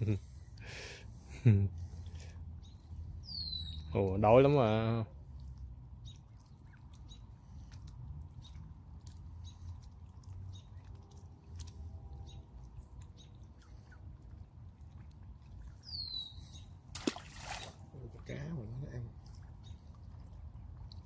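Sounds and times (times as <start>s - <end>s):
birds chirping: 1.4s - 5.1s, 5.9s - 8.7s, 9.3s - 11.0s, 15.7s - 21.0s.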